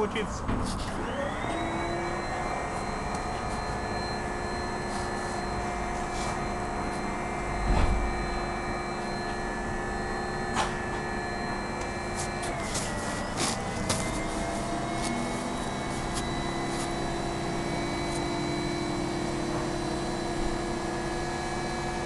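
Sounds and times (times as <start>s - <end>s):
radial piston engine running: 1.0s - 22.0s.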